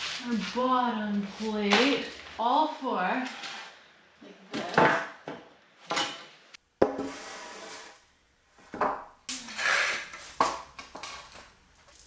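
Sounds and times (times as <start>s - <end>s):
boards scraping and sliding: 6.8s - 8.0s, 9.4s - 12.0s.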